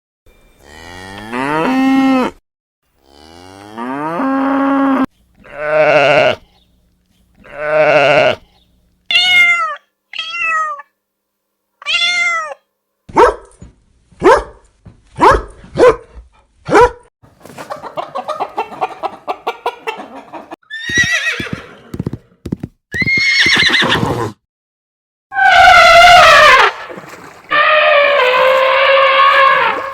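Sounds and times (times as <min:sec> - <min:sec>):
cattle mooing: 0:00.6 - 0:02.4, 0:03.0 - 0:06.5, 0:07.4 - 0:08.5.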